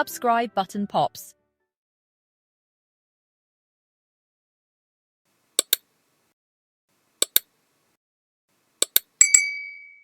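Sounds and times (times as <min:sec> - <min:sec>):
mouse clicks: 0:05.6 - 0:05.9, 0:07.2 - 0:07.5, 0:08.8 - 0:09.1
notification bell ding: 0:09.2 - 0:10.0.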